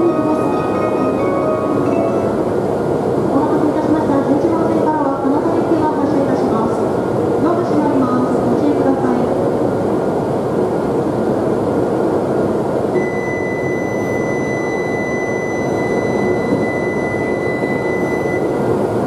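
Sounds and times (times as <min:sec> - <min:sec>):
train running noise: 0:00.0 - 0:19.0
continuous high-pitched beep: 0:13.0 - 0:18.7.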